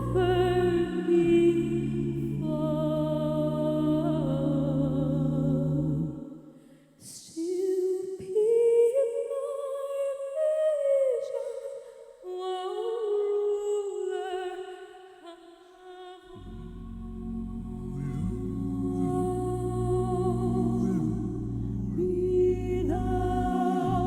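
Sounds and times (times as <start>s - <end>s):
person humming a slow melody: 16.3s - 24.0s.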